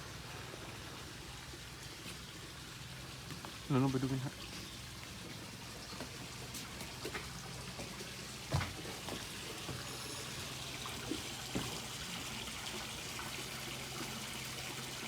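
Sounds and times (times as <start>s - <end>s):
water trickling and dripping: 0.0s - 15.0s.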